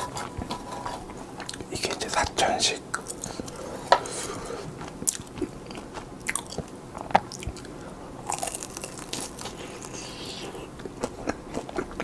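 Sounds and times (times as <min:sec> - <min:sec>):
person chewing: 0:00.0 - 0:02.0, 0:02.9 - 0:12.0.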